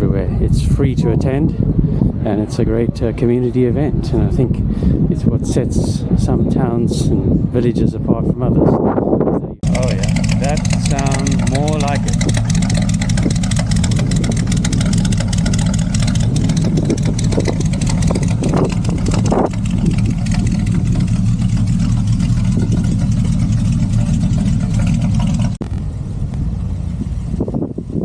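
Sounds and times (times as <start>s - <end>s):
car engine running with deep pulse: 9.6s - 28.0s.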